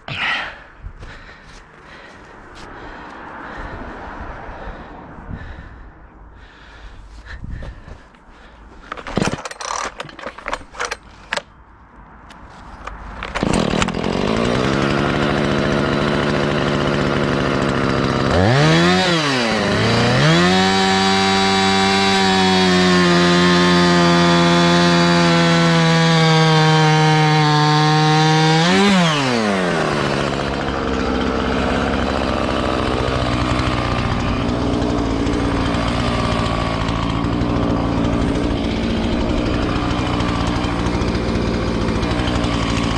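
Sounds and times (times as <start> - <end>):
chainsaw engine revving and idling: 8.8 - 11.4, 13.1 - 42.9.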